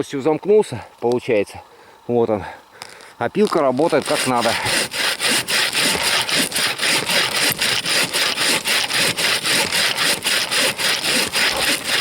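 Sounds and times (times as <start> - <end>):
bow saw cutting log: 3.4 - 12.0.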